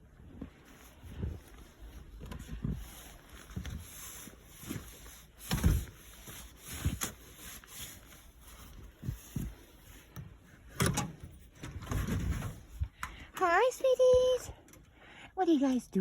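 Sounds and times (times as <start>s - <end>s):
rustling handling noise: 0.0s - 14.6s.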